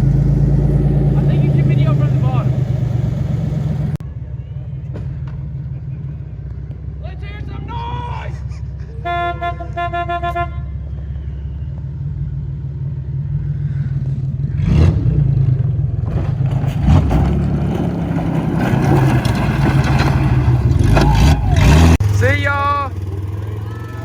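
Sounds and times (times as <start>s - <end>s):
car engine revving: 0.0s - 4.0s, 12.2s - 24.0s
car horn tooting: 9.0s - 11.0s, 23.4s - 24.0s.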